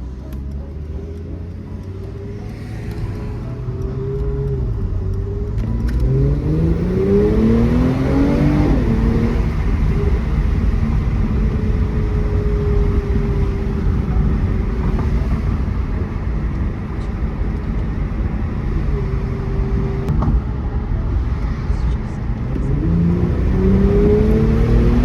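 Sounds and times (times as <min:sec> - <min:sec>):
car engine accelerating: 0:00.0 - 0:25.0
road rumble: 0:00.0 - 0:25.0.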